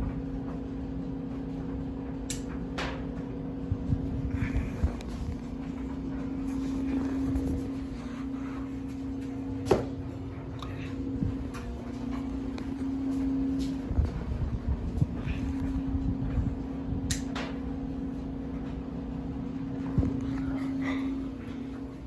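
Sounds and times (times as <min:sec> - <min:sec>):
ceiling fan motor hum: 0:00.0 - 0:22.0
sharp click: 0:17.1 - 0:17.3.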